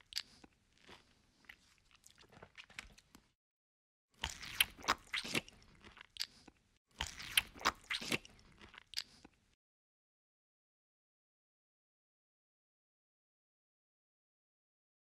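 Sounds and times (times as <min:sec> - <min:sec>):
crunchy biting and chewing: 0:00.0 - 0:03.3, 0:04.2 - 0:09.6.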